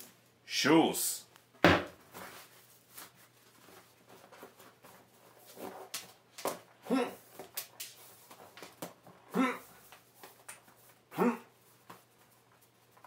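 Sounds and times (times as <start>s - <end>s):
short vocal sounds: 6.8s - 7.2s, 9.3s - 9.7s, 11.1s - 11.5s.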